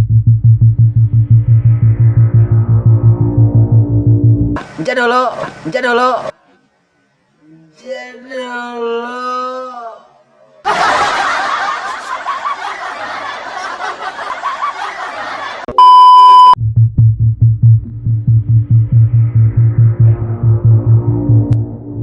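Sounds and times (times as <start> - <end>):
electronic music with pulsing bass: 0.0 - 4.6, 16.8 - 22.0
crowd laughing: 10.6 - 15.8
loud steady beep: 15.7 - 16.6.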